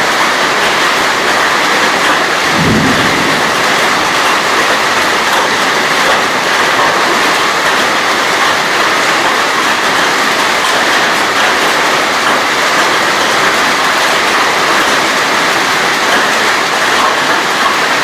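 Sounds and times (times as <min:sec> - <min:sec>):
hail and rain pelting down: 0:00.0 - 0:18.0
low thud: 0:02.5 - 0:05.6.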